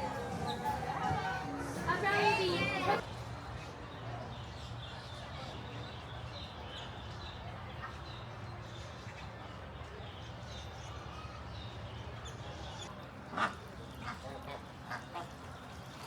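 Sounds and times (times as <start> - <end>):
distant voices: 0.0 - 3.0.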